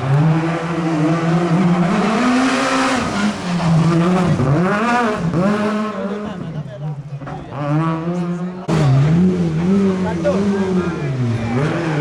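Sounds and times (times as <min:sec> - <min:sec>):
rally car engine at high revs: 0:00.0 - 0:12.0.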